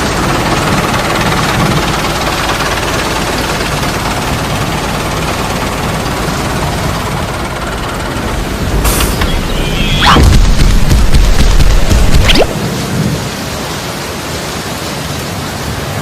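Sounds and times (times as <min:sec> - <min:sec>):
engine rumbling: 0:00.0 - 0:12.6.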